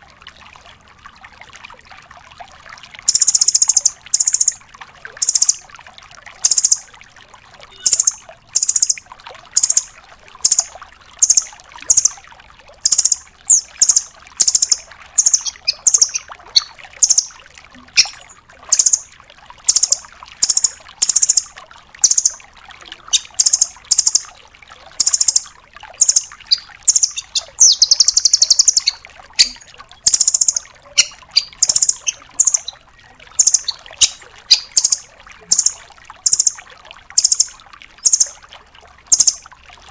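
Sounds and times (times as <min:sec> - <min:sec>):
rapid buzzy bird trill: 0:03.1 - 0:04.6, 0:05.2 - 0:05.6, 0:06.4 - 0:06.8, 0:07.7 - 0:09.0, 0:09.6 - 0:12.2, 0:12.8 - 0:17.4, 0:18.0 - 0:19.1, 0:19.7 - 0:22.4, 0:23.1 - 0:24.3, 0:25.0 - 0:25.4, 0:26.0 - 0:32.8, 0:33.4 - 0:36.6, 0:37.2 - 0:38.4, 0:39.1 - 0:39.4
nuthatch sharp call notes: 0:26.0 - 0:32.7, 0:33.4 - 0:36.6.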